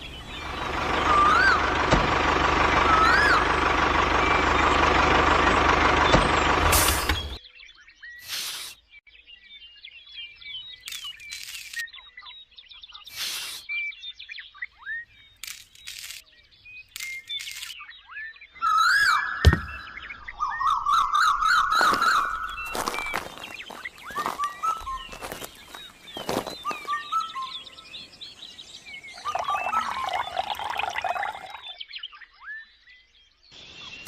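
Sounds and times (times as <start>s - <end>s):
loud bird warbling call: 0.0s - 1.8s, 2.8s - 3.6s, 17.0s - 32.7s
small birds chirping: 0.0s - 1.9s, 2.8s - 34.0s
short bursts of noise: 13.1s - 13.6s.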